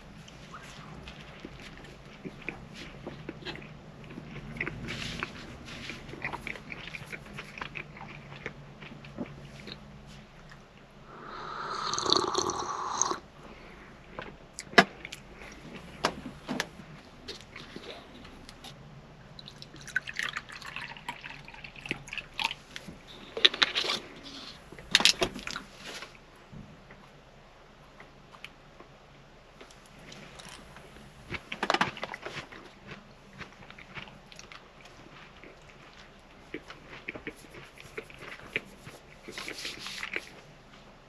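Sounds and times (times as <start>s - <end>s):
liquid pouring: 11.2s - 13.2s, 19.4s - 22.3s.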